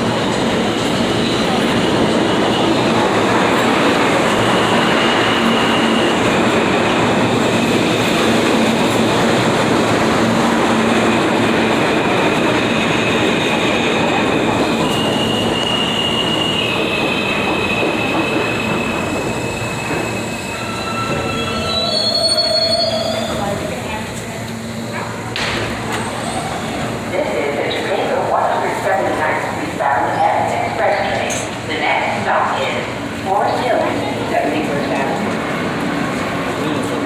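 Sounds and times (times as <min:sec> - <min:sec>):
subway wheel and track rumble: 0:00.0 - 0:37.0
high wheel squeals: 0:14.8 - 0:23.4.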